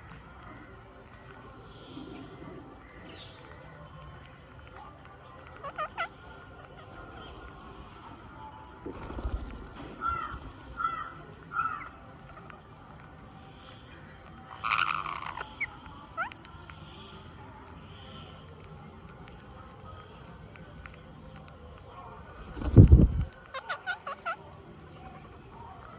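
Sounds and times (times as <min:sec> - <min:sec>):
parakeets calling: 0:05.4 - 0:08.0, 0:08.9 - 0:12.5, 0:14.3 - 0:16.4, 0:22.4 - 0:24.4
harsh parakeet screech: 0:10.0 - 0:11.9, 0:14.6 - 0:15.5.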